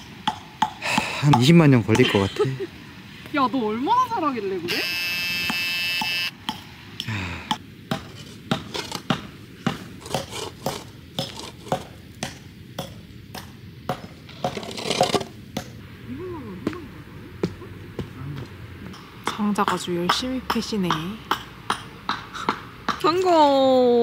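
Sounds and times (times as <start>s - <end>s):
axe chopping wood: 7.9s - 15.8s.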